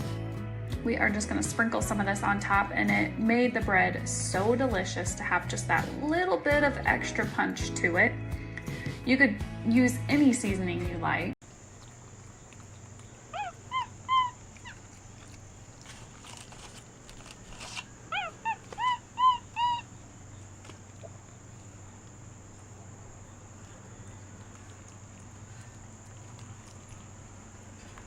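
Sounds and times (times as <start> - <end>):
high-pitched animal cries: 13.3 - 14.9, 18.1 - 20.0.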